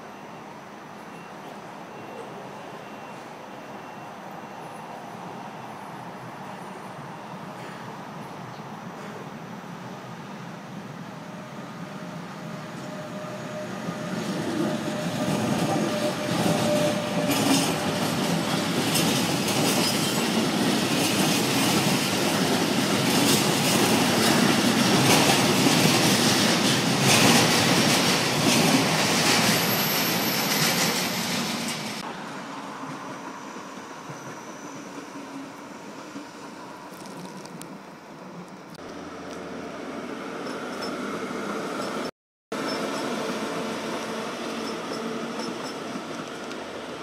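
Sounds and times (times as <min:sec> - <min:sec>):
freight train rolling past: 0:01.9 - 0:47.0
high wheel squeal: 0:12.6 - 0:20.3, 0:28.9 - 0:32.0, 0:33.1 - 0:36.5, 0:40.3 - 0:46.2.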